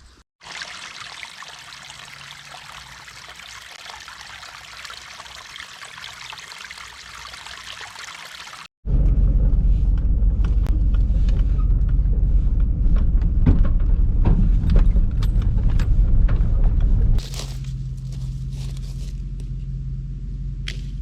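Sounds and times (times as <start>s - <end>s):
truck engine rumble: 8.8s - 21.0s
knocks and rattles from bumps: 10.5s - 17.2s.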